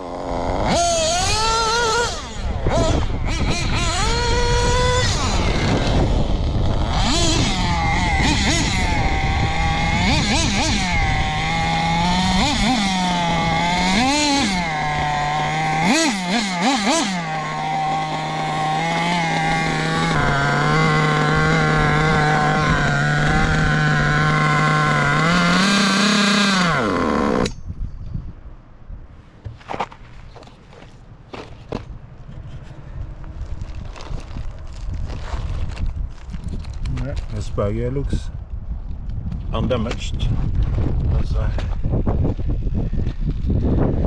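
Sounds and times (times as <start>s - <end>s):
nitro engine revving and idling: 0.0s - 27.5s.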